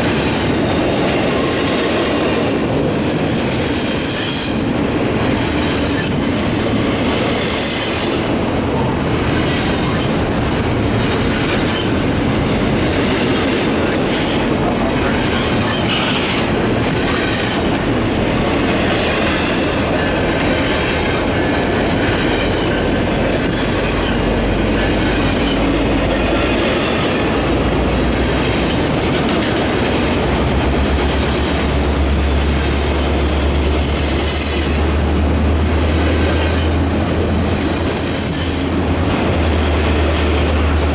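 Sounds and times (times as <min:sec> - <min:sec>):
train wheels clacking over rail joints: 0:00.0 - 0:40.9
faint wheel squeal: 0:34.0 - 0:39.2.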